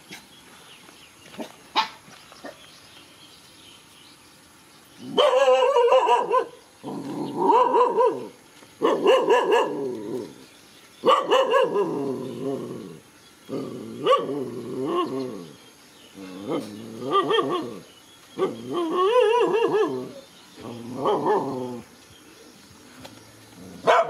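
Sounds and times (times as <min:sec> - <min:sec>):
dog barking: 0:01.7 - 0:02.0, 0:05.1 - 0:06.6, 0:07.4 - 0:09.8, 0:11.0 - 0:12.0, 0:14.0 - 0:14.4.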